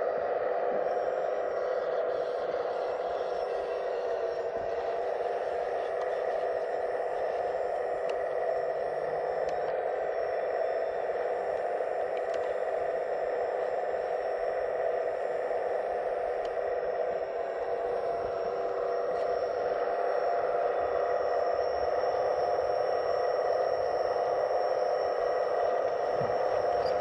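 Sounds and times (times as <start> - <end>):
electric hydraulic pump whine: 0.0 - 27.0.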